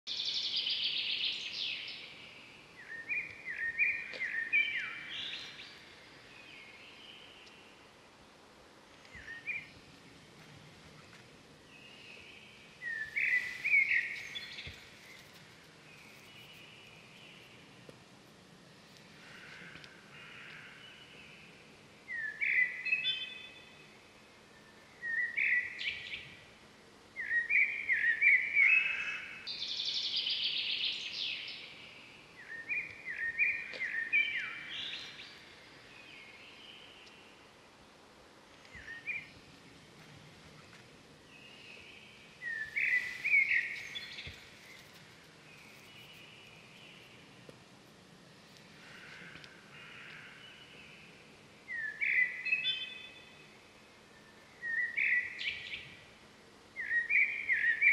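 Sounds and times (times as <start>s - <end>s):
birds chirping: 0.1s - 7.9s, 8.9s - 17.9s, 27.2s - 37.5s, 38.5s - 47.5s, 48.4s - 56.1s, 56.8s - 57.9s.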